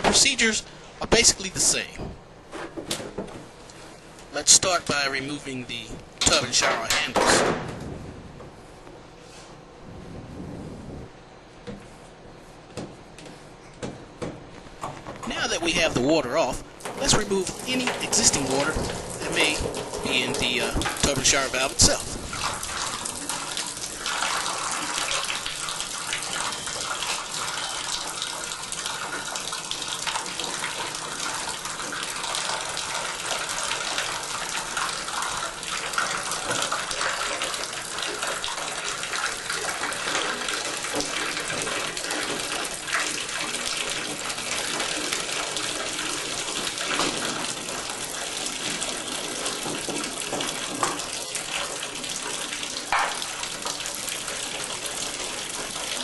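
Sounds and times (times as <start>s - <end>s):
water running into a bathtub: 15.3s - 56.0s.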